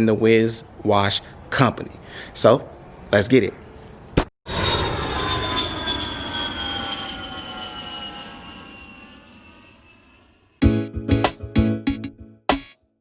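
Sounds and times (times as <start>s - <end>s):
jet aircraft flying past: 4.5s - 10.6s.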